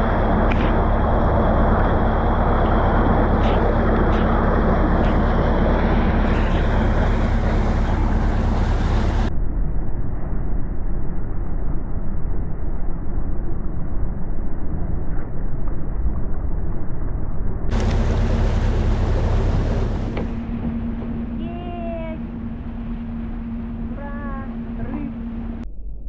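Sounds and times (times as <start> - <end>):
propeller churning water: 0.0 - 9.3, 17.7 - 25.6
ship engine running: 0.0 - 9.3, 17.7 - 25.7
wind on microphone: 0.0 - 9.3.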